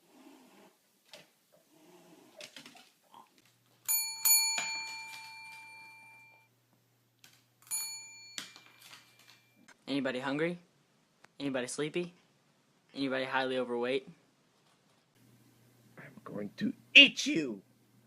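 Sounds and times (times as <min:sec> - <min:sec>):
bell chime ringing: 0:03.9 - 0:06.5, 0:07.7 - 0:09.6.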